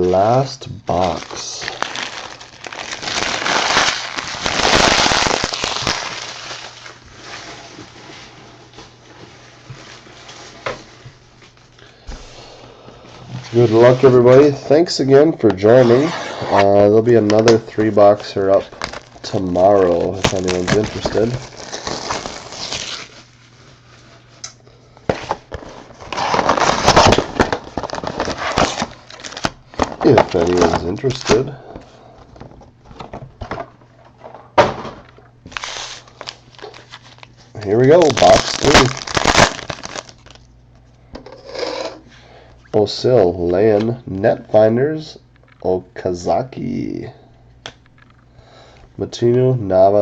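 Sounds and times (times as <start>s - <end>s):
plastic wrapping tearing and crinkling: 0.9s - 8.3s, 17.4s - 24.4s, 25.1s - 31.6s, 35.4s - 40.5s.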